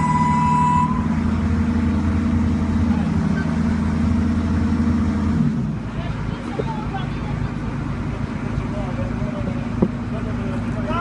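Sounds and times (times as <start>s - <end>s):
high-pitched warning tone: 0.0s - 1.2s
large engine running: 0.0s - 11.0s.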